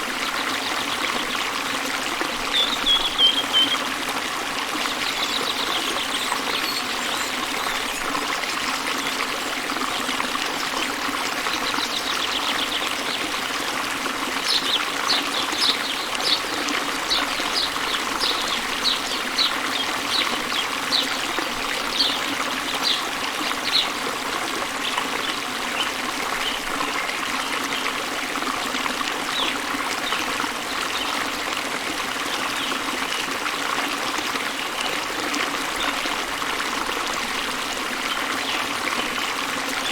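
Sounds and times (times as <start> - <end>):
bird chirping: 2.5 - 3.8
waterfall rushing: 11.5 - 24.2.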